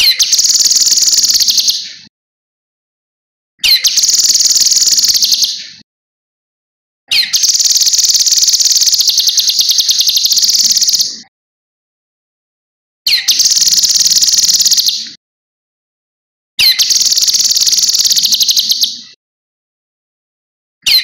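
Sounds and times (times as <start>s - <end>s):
bird singing high trill: 0.0s - 1.9s, 3.6s - 5.7s, 7.1s - 11.2s, 13.1s - 15.2s, 16.6s - 19.2s.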